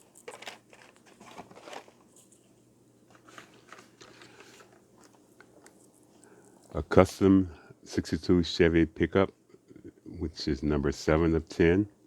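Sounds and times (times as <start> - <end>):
toy trucks clicking and rustling: 0.0 - 2.5, 3.1 - 6.8.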